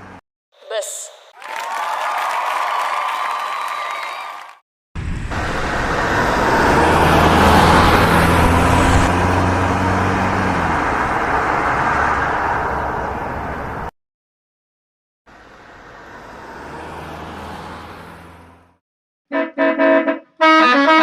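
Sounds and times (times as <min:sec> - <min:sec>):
vehicle engine driving past: 0:05.0 - 0:13.6, 0:16.0 - 0:18.8.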